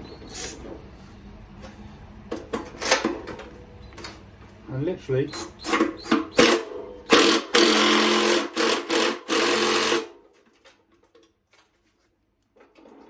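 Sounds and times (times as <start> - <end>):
cordless power driver bursts: 6.0 - 10.1.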